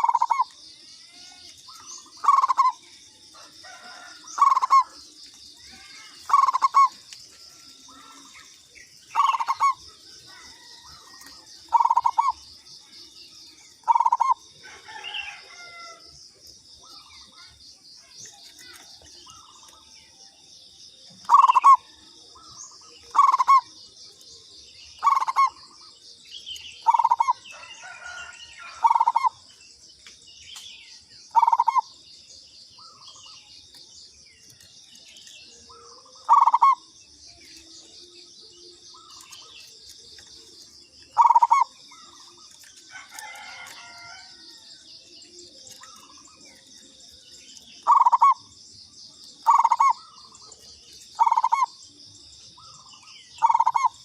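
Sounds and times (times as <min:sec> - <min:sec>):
dove cooing: 0:00.0 - 0:00.6, 0:01.7 - 0:08.5, 0:09.1 - 0:12.6, 0:13.8 - 0:16.0, 0:21.1 - 0:23.8, 0:25.0 - 0:26.0, 0:26.8 - 0:29.4, 0:31.3 - 0:31.9, 0:35.7 - 0:36.9, 0:37.5 - 0:44.6, 0:45.3 - 0:48.5, 0:49.4 - 0:51.8, 0:52.6 - 0:54.0.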